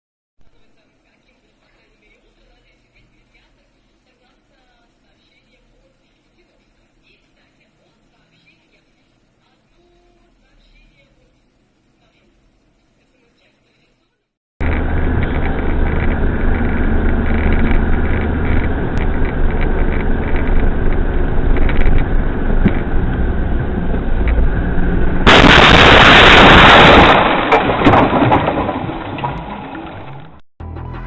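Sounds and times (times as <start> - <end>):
car engine and road noise: 14.6 - 25.6
car collision: 25.2 - 30.0.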